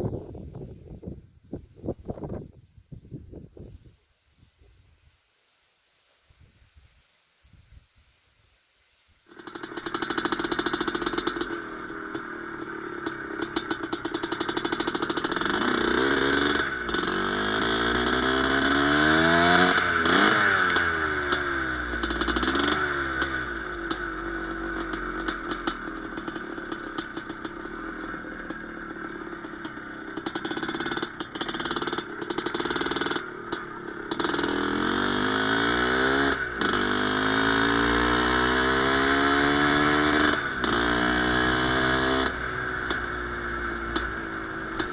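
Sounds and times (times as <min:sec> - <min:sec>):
motorcycle engine revving: 0:00.0 - 0:03.7, 0:09.3 - 0:44.9.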